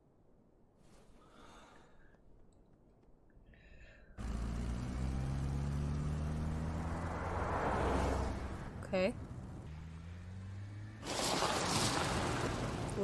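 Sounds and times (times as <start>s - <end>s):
vehicle engine humming: 4.1s - 13.0s.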